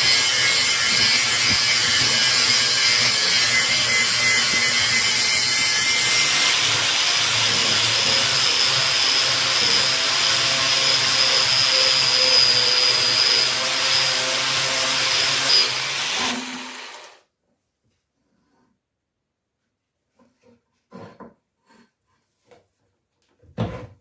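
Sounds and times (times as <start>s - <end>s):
power tool whining: 0.0s - 17.2s.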